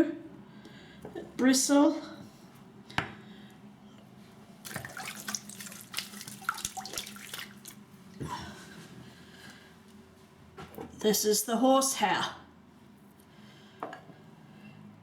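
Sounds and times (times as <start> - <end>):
water and lather splashing: 4.6 - 7.9.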